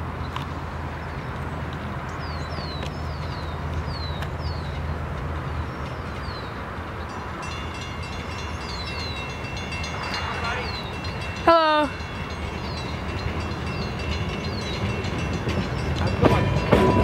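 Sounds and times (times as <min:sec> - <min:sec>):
train rumbling on track: 0:00.0 - 0:17.0
bird chirping: 0:02.1 - 0:04.9, 0:05.5 - 0:11.4, 0:12.0 - 0:15.2.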